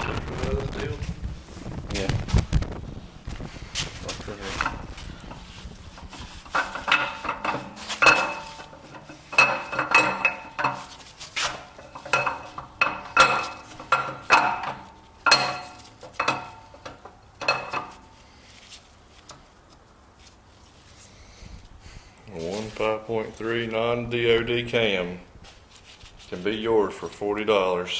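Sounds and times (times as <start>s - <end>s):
metal tools clanking: 4.0s - 18.4s.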